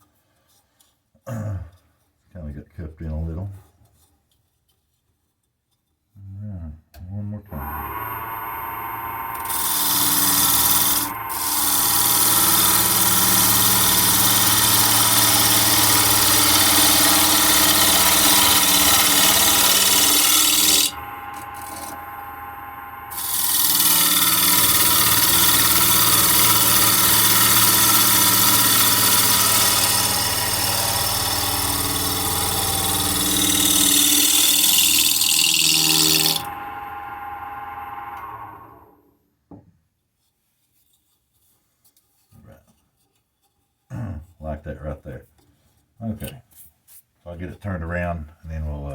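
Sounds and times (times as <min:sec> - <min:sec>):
lathe motor hum: 0:07.5 - 0:39.0
tool hissing against turning wood: 0:09.5 - 0:21.0, 0:23.1 - 0:36.5.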